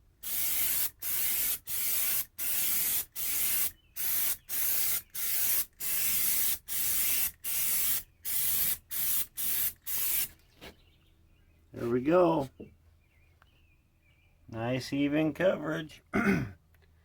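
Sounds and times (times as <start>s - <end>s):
aerosol spray bursts hissing: 0.2s - 10.3s.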